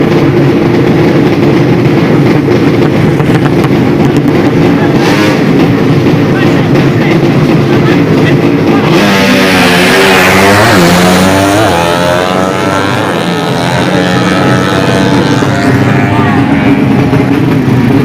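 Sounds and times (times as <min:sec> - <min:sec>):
motorcycle engines revving: 0:00.0 - 0:18.0.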